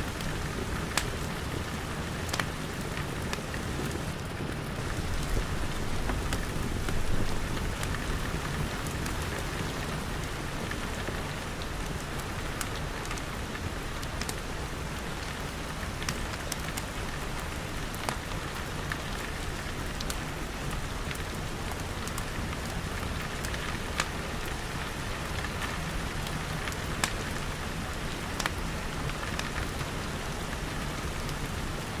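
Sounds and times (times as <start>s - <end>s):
rain pattering on glass: 0.1s - 32.0s
wood fire crackling: 0.1s - 32.0s.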